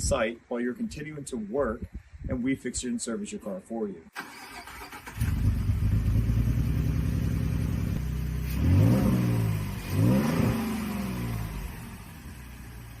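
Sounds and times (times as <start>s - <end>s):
car engine idling and revving: 4.9s - 13.0s.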